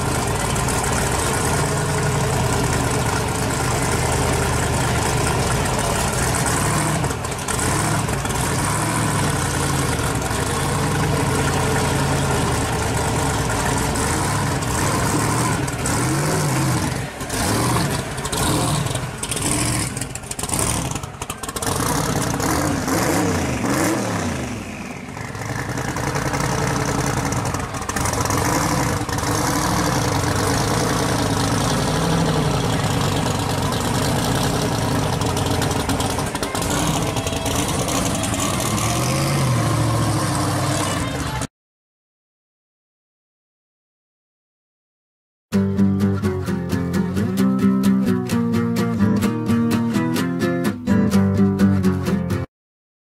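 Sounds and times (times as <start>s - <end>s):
car engine idling and revving: 0.0s - 41.5s.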